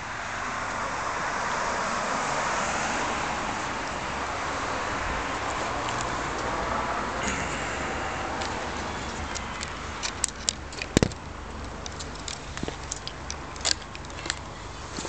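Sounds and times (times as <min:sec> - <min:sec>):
car engine idling: 0:00.0 - 0:14.8
sharp clicks and crackles: 0:05.8 - 0:06.5, 0:08.4 - 0:15.0.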